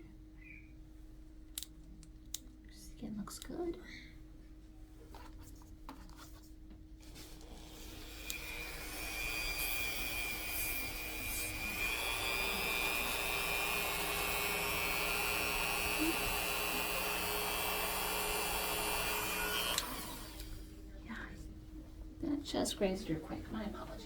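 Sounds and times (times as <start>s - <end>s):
rotary nail grinder whining: 7.4s - 20.6s.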